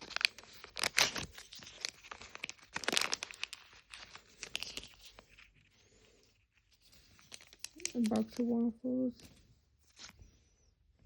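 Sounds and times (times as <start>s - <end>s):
plastic wrapper crinkling: 0.0s - 5.7s, 6.7s - 8.6s.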